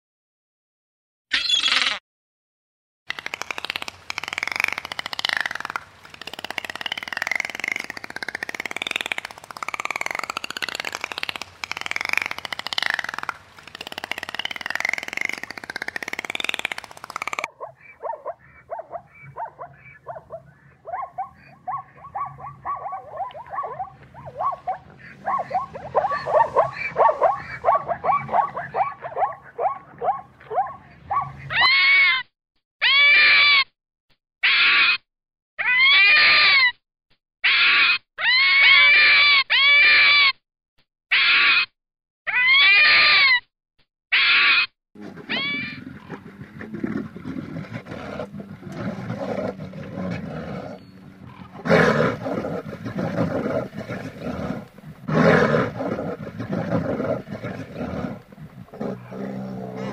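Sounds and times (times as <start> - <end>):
short pitched animal calls: 1.3 - 2.0, 11.8 - 32.2, 44.1 - 46.7
loud rising and falling calls: 3.2 - 32.1, 45.2 - 46.1
low rough animal sound: 45.0 - 59.9.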